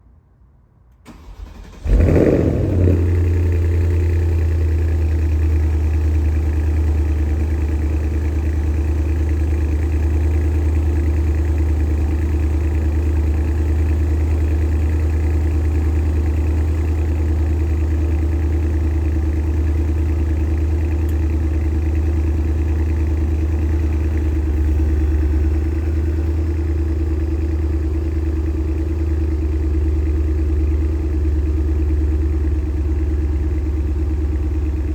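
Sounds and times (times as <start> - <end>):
car engine cranking: 1.1 - 4.4
engine rev flare: 1.1 - 6.5
loud engine idling: 1.5 - 34.9.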